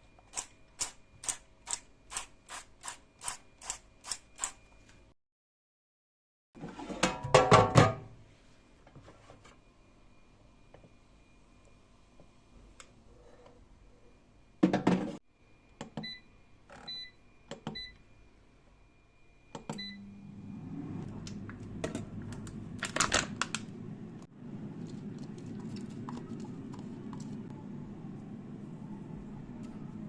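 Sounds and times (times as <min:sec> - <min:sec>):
air fryer fan humming: 0:19.6 - 0:30.0.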